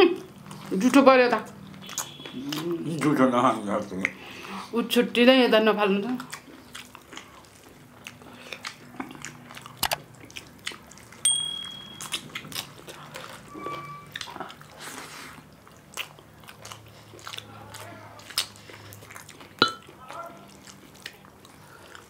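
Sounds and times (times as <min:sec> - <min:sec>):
chewing and wet mouth smacks: 0:01.5 - 0:04.2, 0:06.1 - 0:11.2, 0:12.0 - 0:13.5, 0:14.1 - 0:22.0
short high tone: 0:11.3 - 0:12.1, 0:13.5 - 0:14.1.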